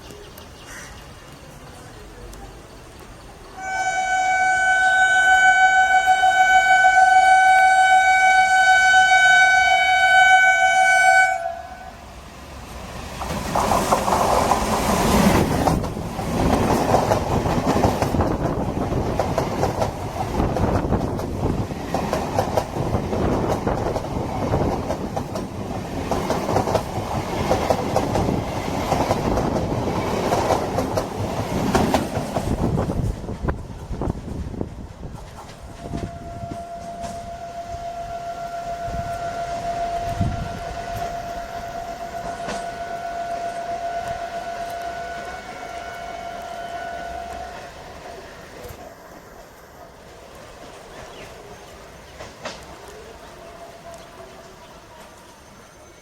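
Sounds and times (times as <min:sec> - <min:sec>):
long train horn blast: 0:03.6 - 0:12.0, 0:35.8 - 0:48.0
train wheels clattering over rails: 0:12.7 - 0:37.3, 0:48.1 - 0:53.0.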